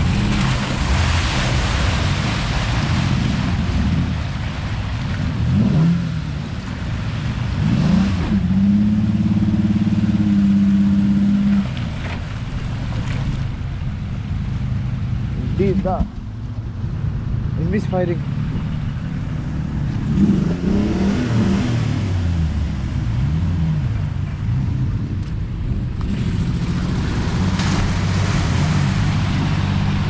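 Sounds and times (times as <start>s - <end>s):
engine revving hard: 7.6s - 11.6s, 20.0s - 22.4s, 26.0s - 30.0s.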